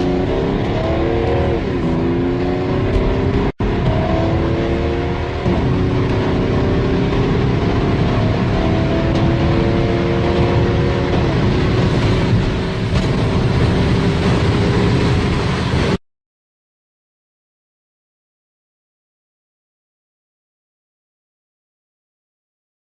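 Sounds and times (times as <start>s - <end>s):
car engine accelerating hard: 0.0s - 16.0s
road and wind noise: 0.0s - 16.0s.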